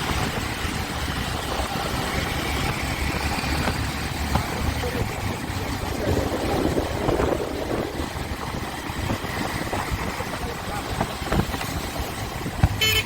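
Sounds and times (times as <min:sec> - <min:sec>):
wind on microphone: 0:05.0 - 0:12.8.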